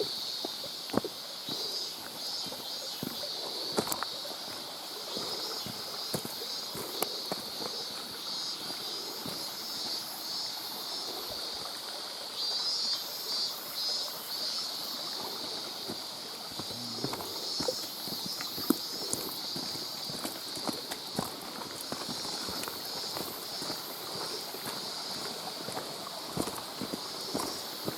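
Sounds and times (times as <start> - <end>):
running water: 0.0 - 27.9
footsteps on wet rock: 0.4 - 1.2, 2.0 - 9.5, 15.9 - 27.9.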